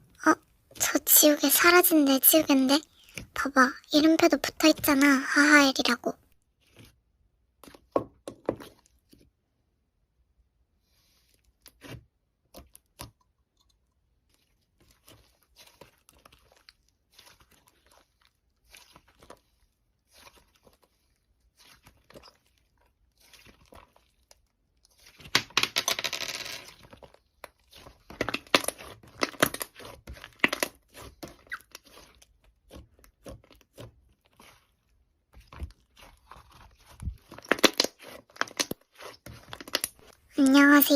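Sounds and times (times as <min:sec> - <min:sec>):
slime crackling and crunching: 0:14.2 - 0:25.5, 0:26.6 - 0:40.9.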